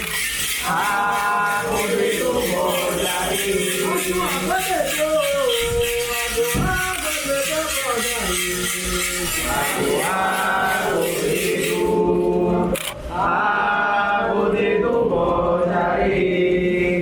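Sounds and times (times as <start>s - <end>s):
group chanting call and response: 0.6s - 17.0s
sharp click: 12.7s - 13.0s.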